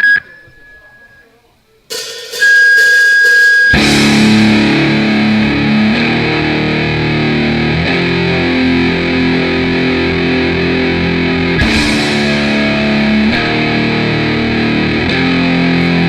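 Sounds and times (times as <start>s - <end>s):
high steady tone: 0.0s - 5.5s
distorted electric guitar riff: 1.9s - 16.0s.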